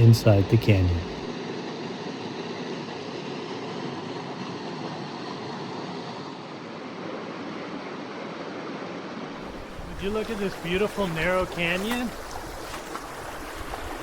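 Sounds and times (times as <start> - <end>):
creek water rushing: 9.4 - 14.0.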